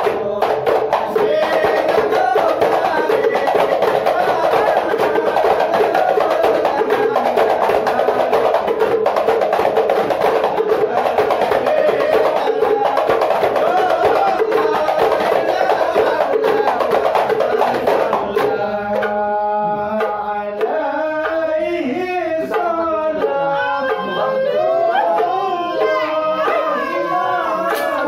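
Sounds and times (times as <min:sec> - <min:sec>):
frame drums: 0:00.0 - 0:28.0
group singing: 0:00.0 - 0:28.0.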